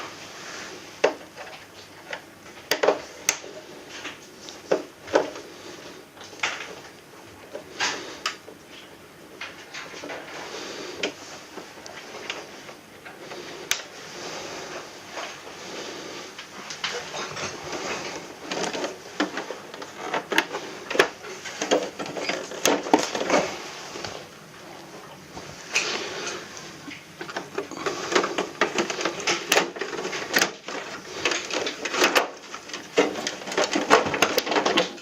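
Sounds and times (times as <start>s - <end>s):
plastic clicks and rattles: 26.9s - 35.0s.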